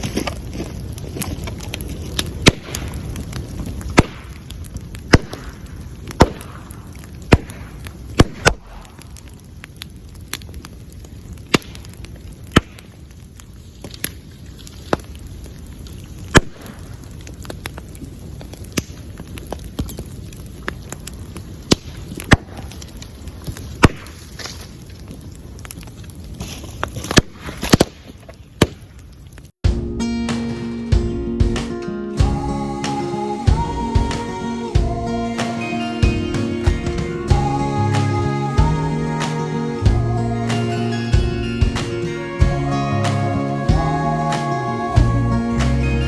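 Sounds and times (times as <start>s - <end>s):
bamboo bursting with loud cracks: 0.0s - 29.6s
bonfire rush and crackle: 0.0s - 29.6s, 32.2s - 46.0s.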